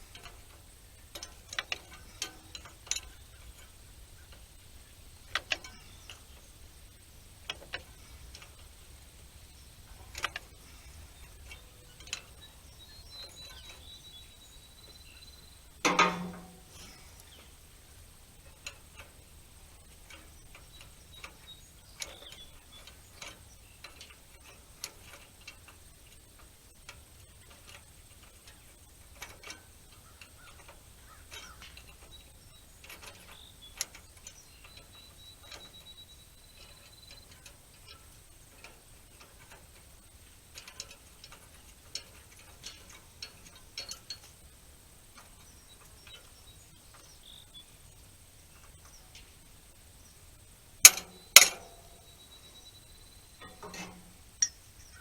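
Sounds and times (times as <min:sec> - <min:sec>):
light metallic clicks and taps: 0:00.0 - 0:50.2, 0:50.8 - 0:52.7, 0:53.3 - 0:55.0
metal clank: 0:15.8 - 0:17.3, 0:50.8 - 0:52.2, 0:53.4 - 0:55.0.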